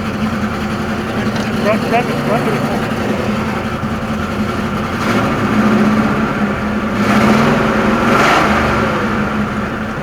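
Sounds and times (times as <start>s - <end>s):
car engine running: 0.0s - 6.9s.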